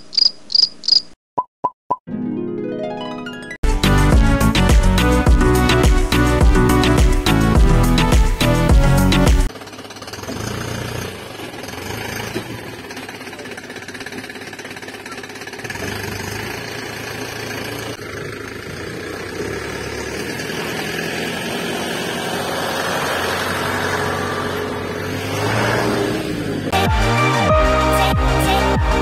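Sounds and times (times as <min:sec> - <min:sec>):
truck engine knocking rumble: 0:04.6 - 0:23.4.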